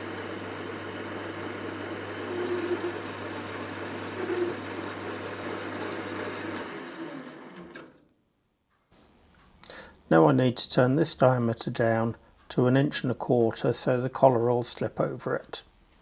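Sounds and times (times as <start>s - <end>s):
machine tool motor humming: 0.0s - 7.9s.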